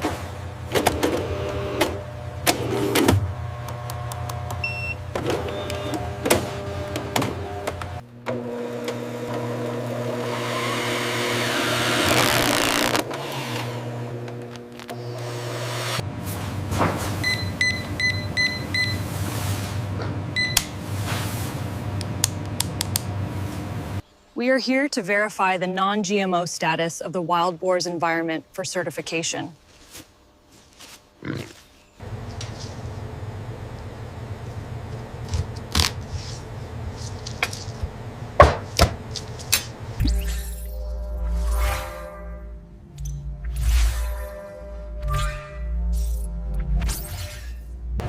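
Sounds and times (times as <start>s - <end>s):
steady machine hum: 0.0s - 24.1s, 32.0s - 46.8s
steady low hum: 32.0s - 48.0s.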